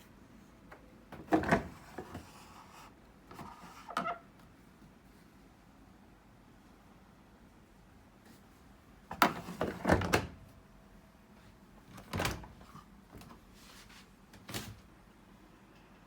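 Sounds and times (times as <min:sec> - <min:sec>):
washing machine knocks and rattles: 0:09.1 - 0:10.4, 0:12.0 - 0:12.6.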